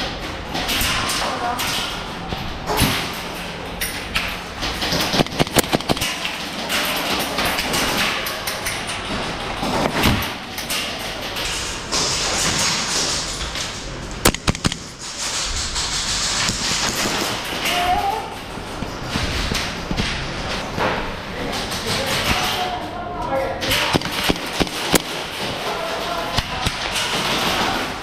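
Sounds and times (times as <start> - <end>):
sharp cracks and taps: 3.8 - 9.0, 14.2 - 14.9, 23.6 - 25.6.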